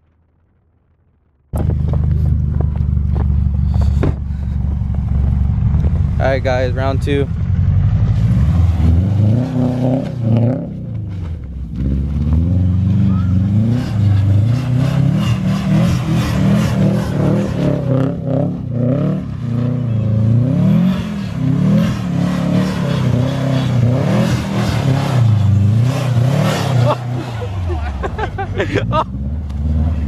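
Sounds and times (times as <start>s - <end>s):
car engine revving hard: 7.8s - 10.9s, 11.8s - 30.0s.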